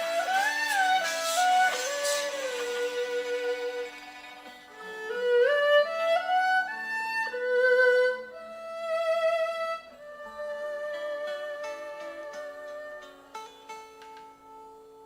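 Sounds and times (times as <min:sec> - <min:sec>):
backing accompaniment: 0:00.0 - 0:07.9
erhu playing slow melody: 0:00.0 - 0:15.0.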